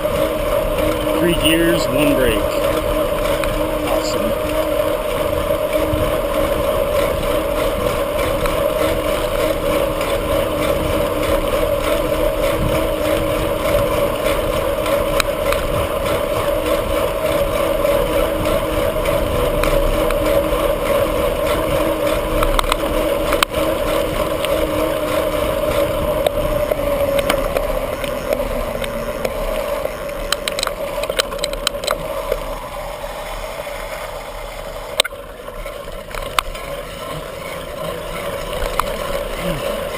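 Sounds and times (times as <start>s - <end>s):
bicycle tyre and wind noise: 0.0s - 39.9s.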